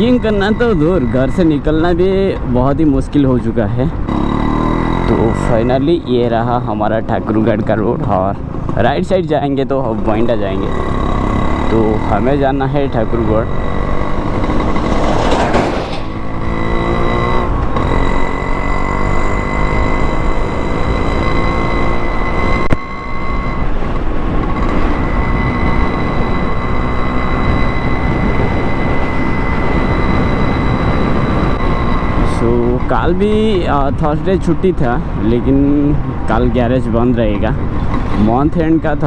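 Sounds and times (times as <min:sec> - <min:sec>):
motorcycle engine revving: 0:00.0 - 0:39.0
steady rushing noise: 0:10.1 - 0:19.0.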